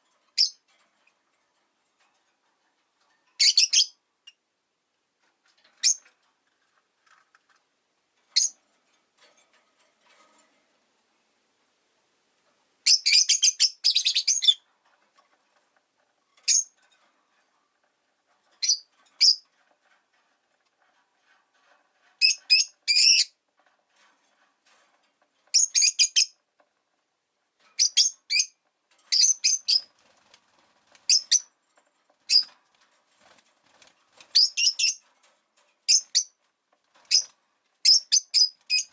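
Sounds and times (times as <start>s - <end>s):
lovebirds chirping: 3.4s - 4.4s, 12.8s - 14.7s, 16.4s - 16.8s, 18.6s - 19.5s, 22.2s - 23.4s, 25.5s - 26.4s, 27.8s - 29.9s, 31.0s - 31.5s, 32.3s - 32.6s, 34.3s - 35.0s, 37.1s - 38.9s.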